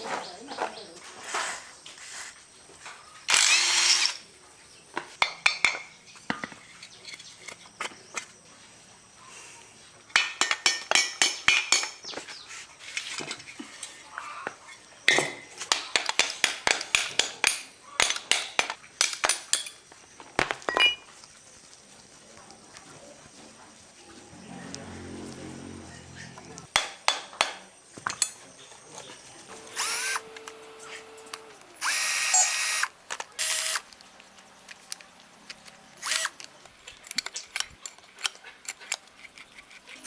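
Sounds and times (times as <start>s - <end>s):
hand tools clinking on metal: 10.1s - 12.1s, 20.7s - 21.1s.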